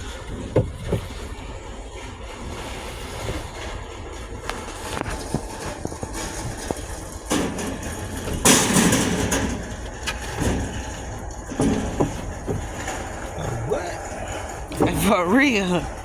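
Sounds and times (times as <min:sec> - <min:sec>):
scattered clicks and knocks: 0:04.3 - 0:16.0.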